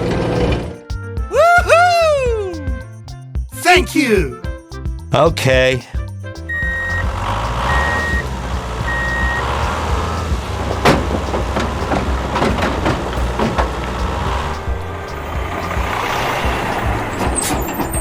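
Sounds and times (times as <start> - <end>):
low engine rumble: 6.4 - 18.0
reversing beeper: 6.5 - 7.1, 7.7 - 8.3, 8.9 - 9.5.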